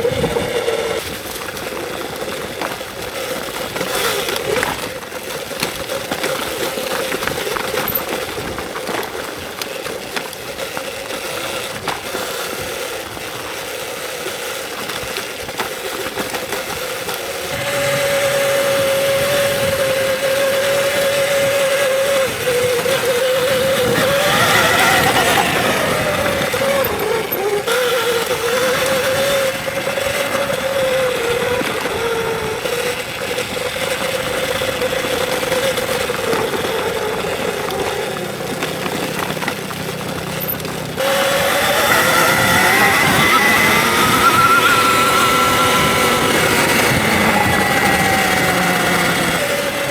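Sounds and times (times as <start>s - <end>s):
wind noise: 0.0s - 5.0s, 17.4s - 39.4s, 40.8s - 49.9s
electric motor whining: 0.0s - 49.9s
tyre noise: 0.0s - 49.9s.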